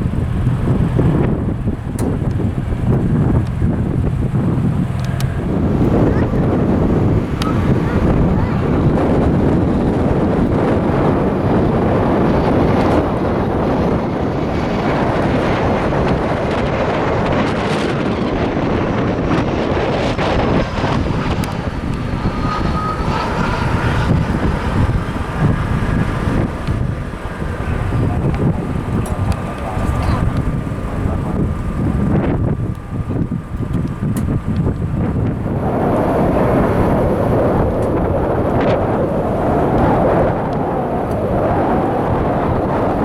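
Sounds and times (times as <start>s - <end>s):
jet engines rumbling: 0.0s - 43.0s
wind buffeting microphone: 0.0s - 43.0s
faint high whine: 19.8s - 33.4s.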